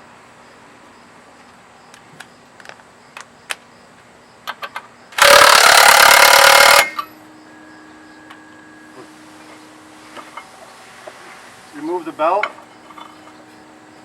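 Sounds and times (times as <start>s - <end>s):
impact wrench hammering: 5.2s - 7.1s.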